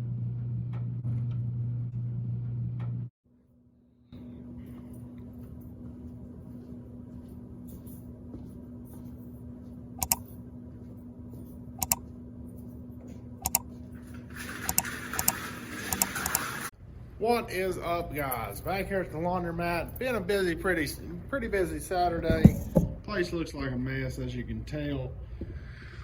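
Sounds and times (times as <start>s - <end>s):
low machine hum: 0.0s - 26.0s
sharp clicks: 10.0s - 10.3s, 11.8s - 12.0s, 13.4s - 13.7s.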